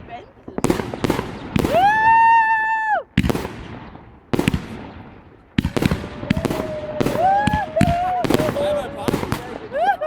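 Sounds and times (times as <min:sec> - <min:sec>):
fireworks bangs and crackles: 0:00.0 - 0:10.0
wavering firework whistle: 0:06.0 - 0:08.8.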